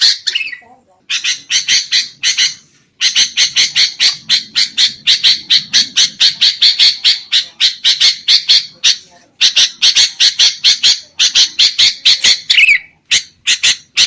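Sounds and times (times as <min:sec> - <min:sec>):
bird harsh chattering calls: 0:00.0 - 0:14.0.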